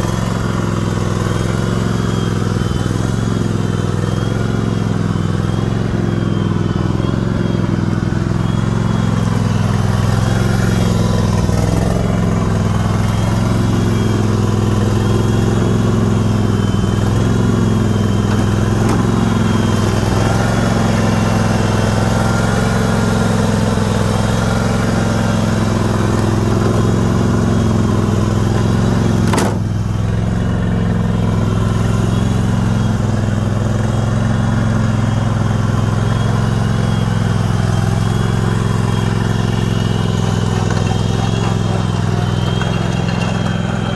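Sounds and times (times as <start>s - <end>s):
riding lawn mower engine running: 0.0s - 43.9s.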